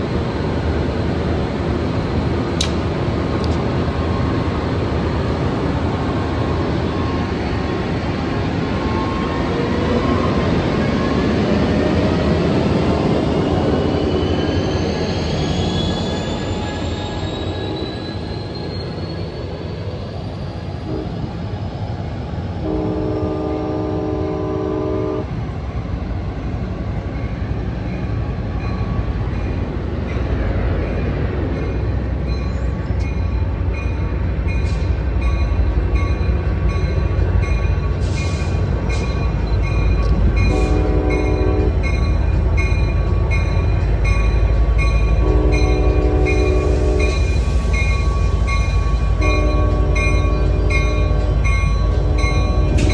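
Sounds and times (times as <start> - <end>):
passenger train whine: 0.0 - 52.9
locomotive horn blast: 22.6 - 25.3, 40.5 - 41.8, 45.2 - 47.2, 49.2 - 52.9
locomotive bell ringing: 31.0 - 52.9.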